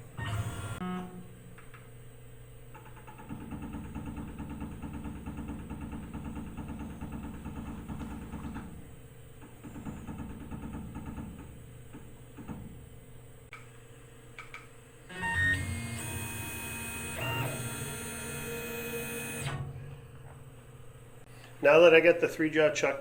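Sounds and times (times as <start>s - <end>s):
low machine hum: 0.0s - 23.0s
stepper motor whine: 15.1s - 19.7s.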